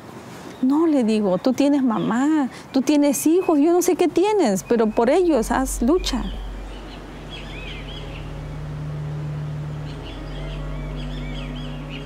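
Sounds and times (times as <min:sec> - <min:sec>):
small birds chirping: 0:00.4 - 0:12.0
steady low hum: 0:02.6 - 0:12.0.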